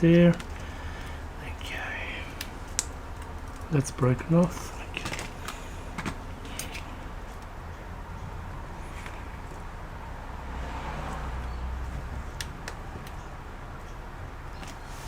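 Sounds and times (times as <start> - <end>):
low electrical hum and hiss: 0.0 - 10.6
faint light clicks of small parts: 0.2 - 3.8, 4.4 - 7.5.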